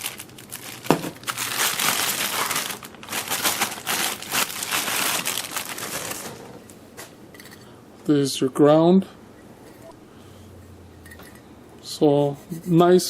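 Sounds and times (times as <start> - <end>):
packaging crinkling and rustling: 0.0 - 6.6.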